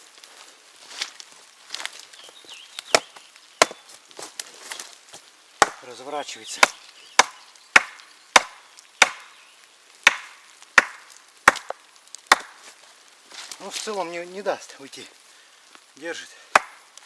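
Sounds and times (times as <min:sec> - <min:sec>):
axe striking wood: 0:02.9 - 0:03.8, 0:05.6 - 0:05.9, 0:06.6 - 0:09.3, 0:10.0 - 0:12.6, 0:16.5 - 0:16.8.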